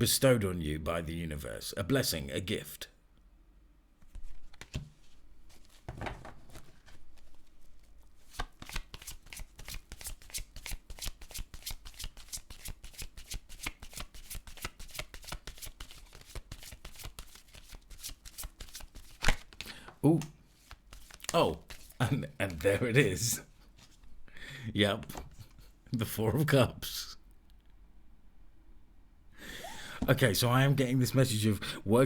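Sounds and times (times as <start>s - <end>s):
cards being shuffled: 4.0s - 22.8s.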